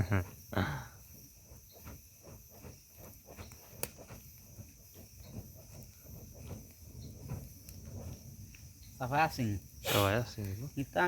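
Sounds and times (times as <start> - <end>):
bonfire crackling: 0.0 - 11.0
crickets chirring: 0.0 - 11.0.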